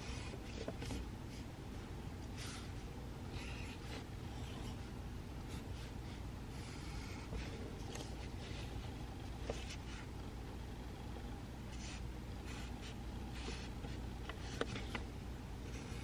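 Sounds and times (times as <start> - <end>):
pencil writing on paper: 0.0 - 1.0, 2.4 - 4.9, 11.7 - 15.0
low room hum: 0.0 - 16.0.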